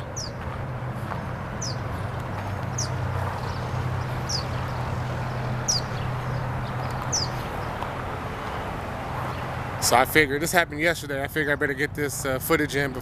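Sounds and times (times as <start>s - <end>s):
bird chirping: 0.0s - 0.4s, 1.5s - 8.0s.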